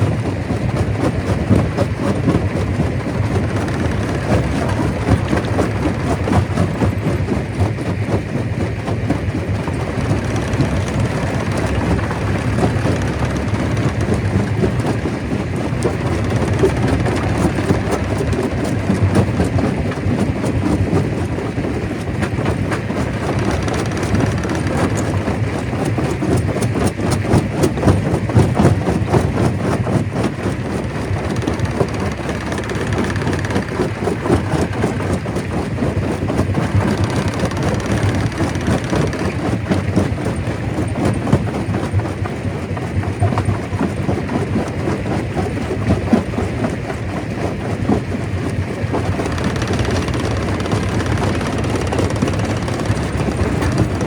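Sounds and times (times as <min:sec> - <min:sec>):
stone crusher rumbling: 0:00.8 - 0:42.1, 0:45.4 - 0:54.0.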